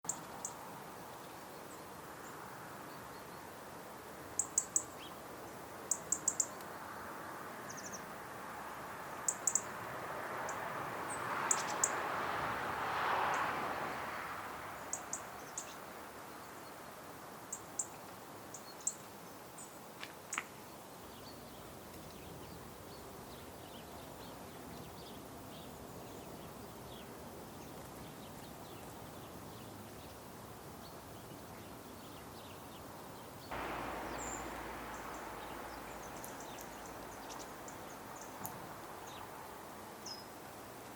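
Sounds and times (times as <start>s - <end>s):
outdoor background hiss: 0.0s - 40.9s
high bird chirps: 33.5s - 39.3s.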